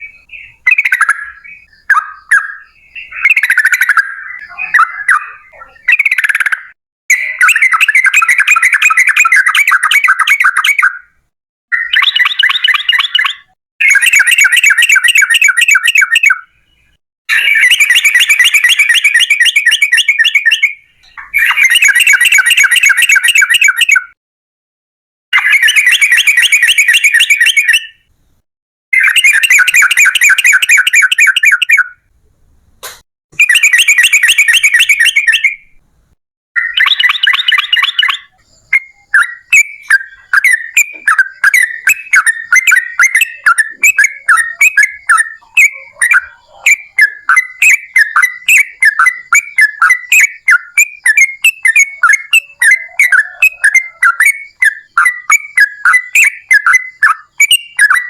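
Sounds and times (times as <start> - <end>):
bird rapid trilling: 0.0 - 11.1, 17.3 - 24.1, 29.0 - 32.0, 33.4 - 35.7, 36.6 - 58.0.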